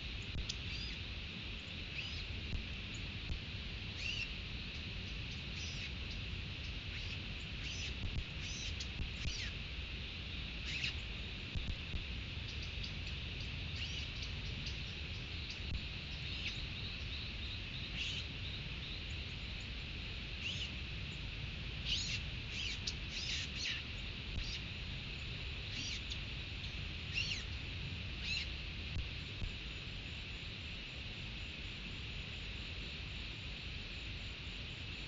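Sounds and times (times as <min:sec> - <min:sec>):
wild birds calling: 0:00.1 - 0:01.0, 0:01.6 - 0:03.1, 0:03.9 - 0:09.7, 0:10.4 - 0:11.7, 0:12.4 - 0:20.8, 0:21.8 - 0:28.6.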